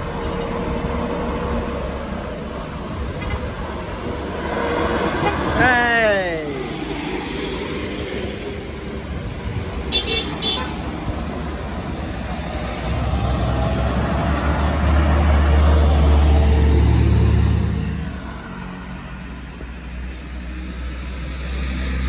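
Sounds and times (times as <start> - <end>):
heavy truck engine rumbling: 0.0 - 22.0.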